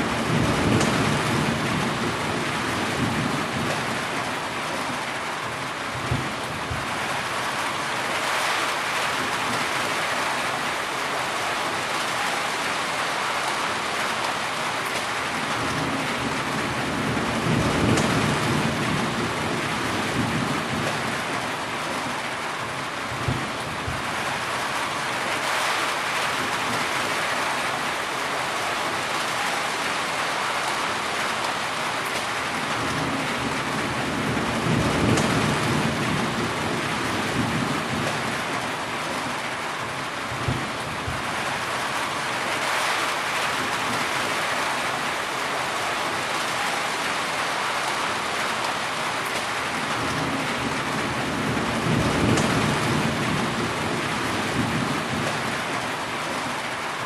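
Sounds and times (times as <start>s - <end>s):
heavy rain falling: 0.0s - 57.0s
thunder rolling: 32.8s - 38.4s, 50.0s - 55.6s.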